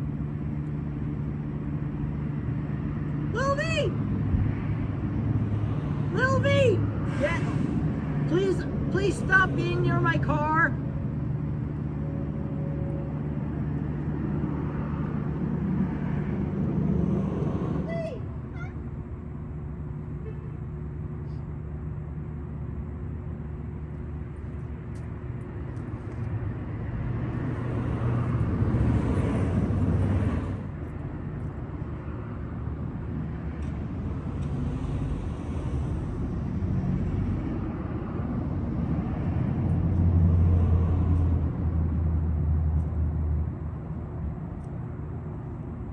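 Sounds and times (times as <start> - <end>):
traffic hum: 0.0 - 45.9
vehicles passing: 0.0 - 45.9.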